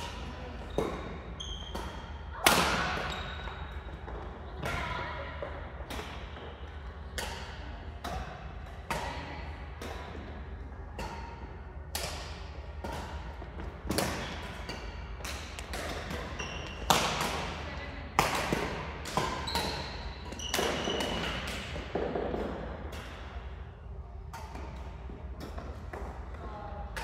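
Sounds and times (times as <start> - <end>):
sneakers squeaking on court floor: 0.5 - 2.2, 2.8 - 4.7, 14.0 - 17.6, 19.0 - 22.0
rackets striking shuttlecock: 7.1 - 9.1, 11.0 - 17.6.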